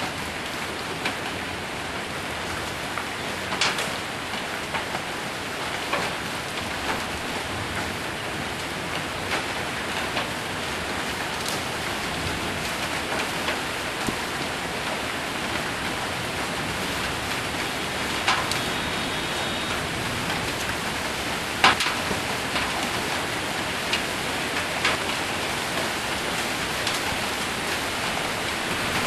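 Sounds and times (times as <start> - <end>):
heavy rain on a roof: 0.0 - 29.0
hailstones ticking: 5.8 - 29.0.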